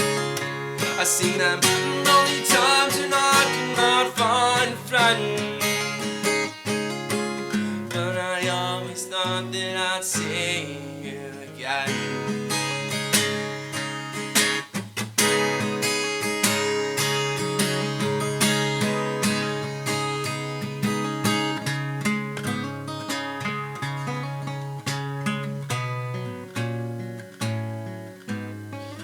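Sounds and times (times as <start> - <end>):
acoustic guitar picking: 0.0 - 29.0.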